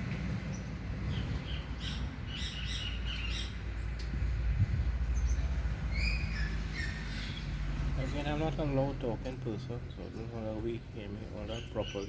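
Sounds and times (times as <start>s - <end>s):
wind buffeting microphone: 0.0s - 2.6s, 4.0s - 7.7s
birds chirping: 0.4s - 12.0s.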